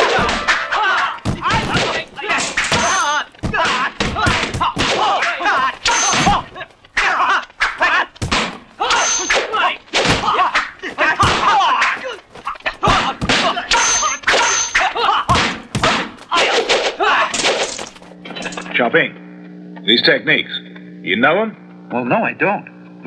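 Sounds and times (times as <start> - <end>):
wooden staff hitting shields: 0.0 - 6.5, 8.2 - 8.9, 10.0 - 12.1, 12.8 - 16.9
fighters shouting and grunting: 0.0 - 17.6.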